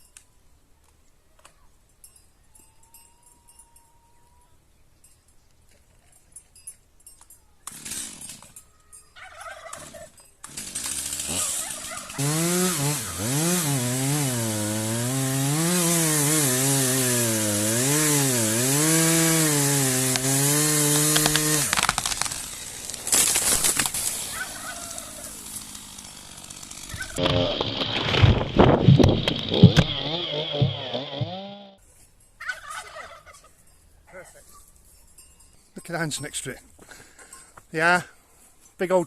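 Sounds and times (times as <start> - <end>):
chainsaw cutting tree trunk: 7.7 - 8.5, 9.8 - 31.8
clatter of cracks: 21.1 - 24.2.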